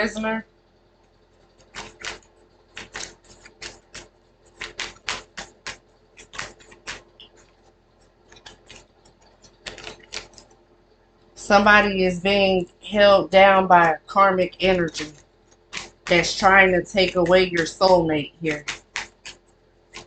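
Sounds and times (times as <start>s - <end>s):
cards being shuffled: 1.6s - 2.2s, 2.8s - 7.4s, 9.6s - 10.5s, 14.9s - 16.2s, 18.5s - 20.0s.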